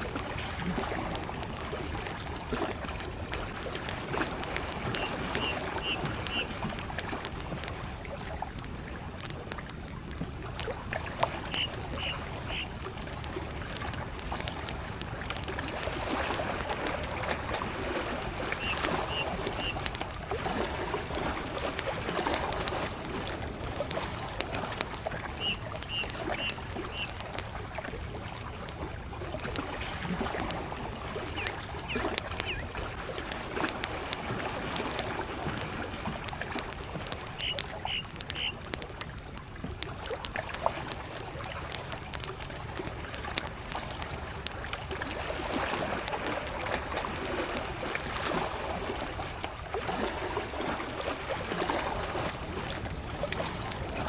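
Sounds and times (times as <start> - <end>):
campfire crackling: 0.0 - 54.0
small waves lapping at shore: 0.0 - 54.0
bird short call: 5.0 - 6.6, 11.4 - 12.7, 18.6 - 19.8, 25.4 - 27.2, 37.4 - 38.6.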